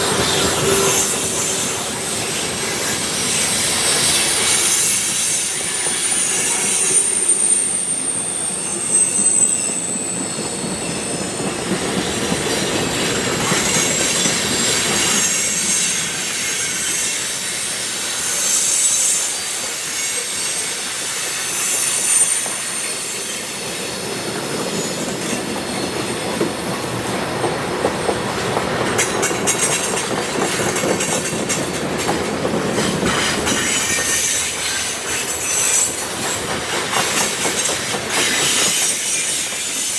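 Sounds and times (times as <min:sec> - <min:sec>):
high wheel squeal: 0:00.0 - 0:26.6, 0:32.7 - 0:39.9
freight train cars rolling: 0:00.0 - 0:39.9
wheels clattering over rail joints: 0:24.4 - 0:39.9.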